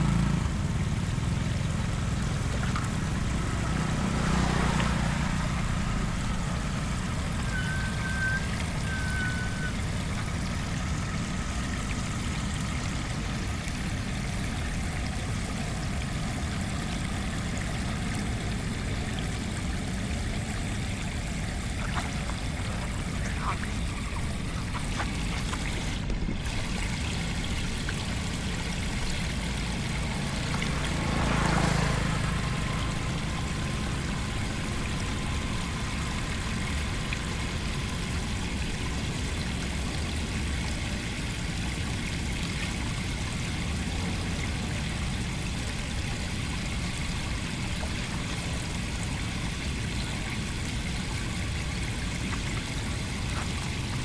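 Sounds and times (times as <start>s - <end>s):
rushing floodwater: 0.0s - 54.0s.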